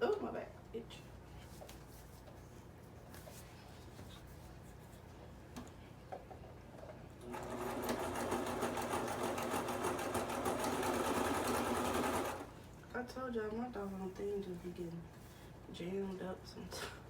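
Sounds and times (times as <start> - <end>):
sewing machine running: 7.2 - 12.5.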